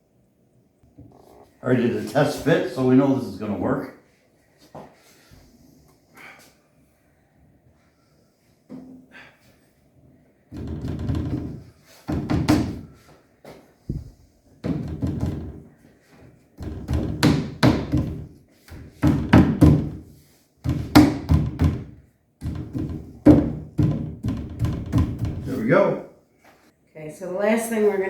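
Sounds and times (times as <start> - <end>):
mallet striking wood: 20.7 - 25.4.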